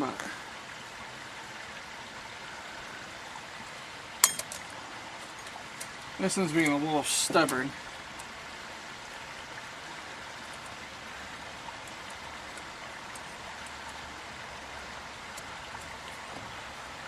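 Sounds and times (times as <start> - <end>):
background hiss: 0.0 - 17.0
faint small ticks: 11.7 - 14.2.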